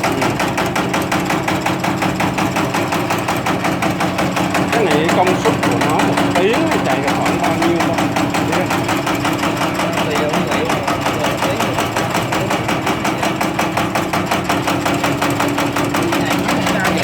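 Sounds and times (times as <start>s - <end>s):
machine motor hum: 0.0s - 17.0s.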